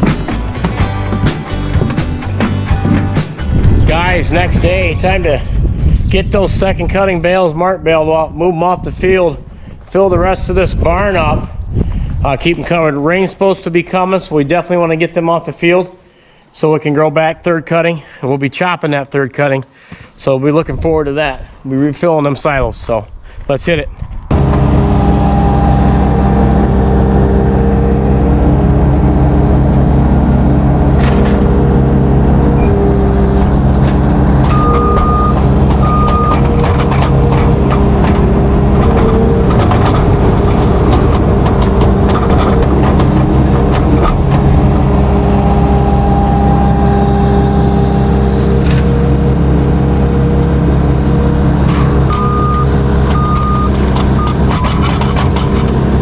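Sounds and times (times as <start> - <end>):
knocks and clanks: 0.0 - 4.8, 30.9 - 31.8, 32.5 - 45.3, 48.4 - 56.0
diesel engine running: 0.0 - 6.0, 24.3 - 56.0
short high beeps: 34.5 - 36.4, 52.1 - 54.8.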